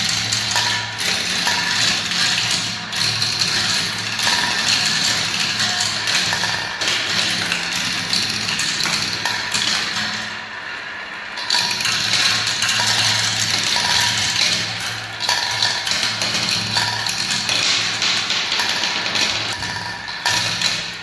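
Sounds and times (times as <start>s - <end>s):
marbles clattering down plastic tracks: 11.9s - 21.0s.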